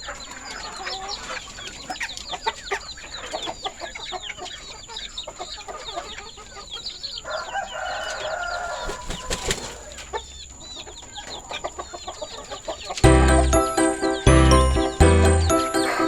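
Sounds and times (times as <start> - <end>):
chickens chirping: 0.0 - 16.0
rooster crowing: 7.2 - 9.1.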